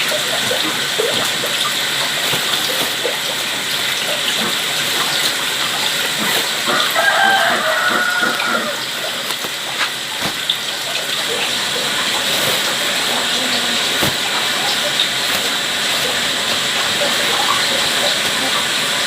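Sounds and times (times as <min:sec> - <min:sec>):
running water: 0:00.0 - 0:19.0
rooster crowing: 0:06.7 - 0:08.9.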